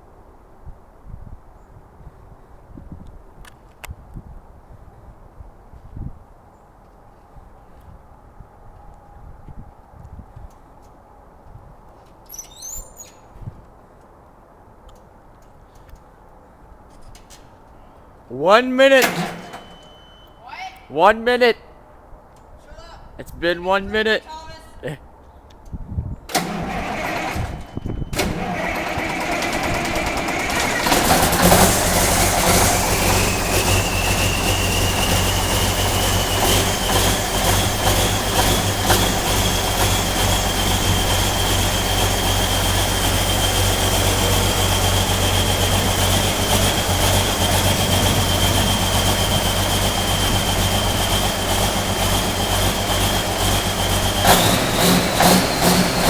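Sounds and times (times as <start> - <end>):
diesel engine cranking: 18.3 - 20.4, 26.3 - 56.0
diesel engine running: 19.0 - 20.2, 26.3 - 56.0
high whine: 27.4 - 56.0.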